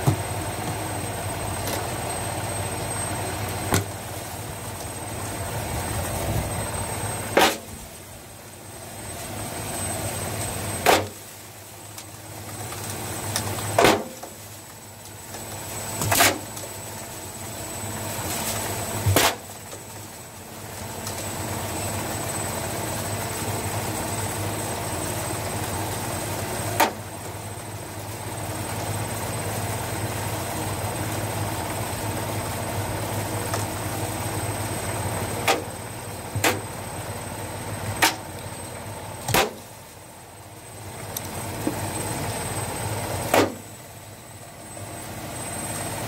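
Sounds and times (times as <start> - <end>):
thin high whine: 0.0 - 12.0
washing machine motor hum: 0.0 - 13.8, 19.8 - 46.0
sharp knocks and bangs: 39.3 - 39.7.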